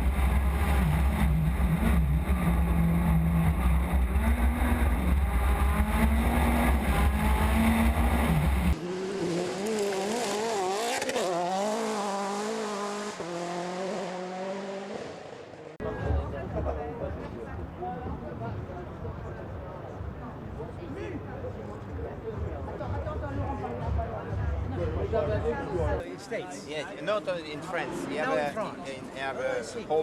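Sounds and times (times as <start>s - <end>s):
car engine droning: 0.0s - 15.8s
engine revving: 0.0s - 15.8s.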